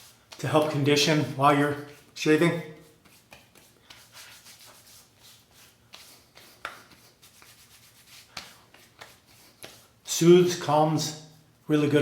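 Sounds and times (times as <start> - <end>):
hands rubbing gel on skin: 2.8 - 10.1.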